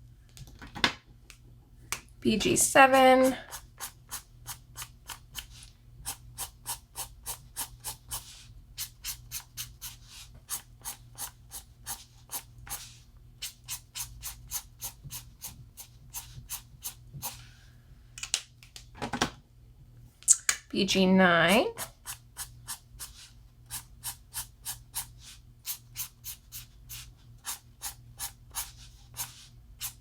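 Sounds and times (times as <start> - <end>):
marker strokes on paper: 2.8 - 17.5, 21.8 - 30.0.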